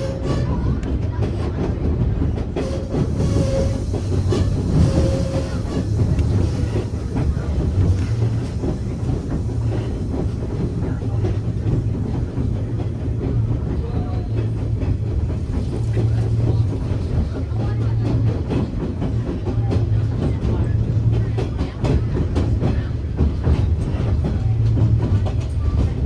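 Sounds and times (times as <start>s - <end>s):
faint clickety-clack: 0.0s - 26.0s
train wheels rumbling on track: 0.0s - 26.0s.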